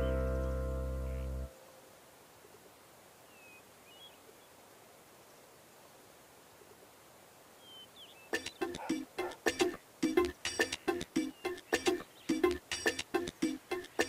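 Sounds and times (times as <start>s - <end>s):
high bird chirps: 7.6s - 13.0s.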